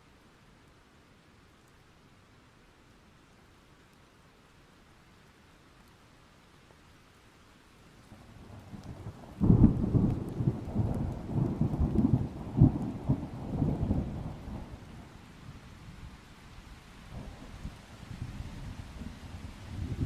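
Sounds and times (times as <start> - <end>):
thunder rumbling: 8.6 - 15.0.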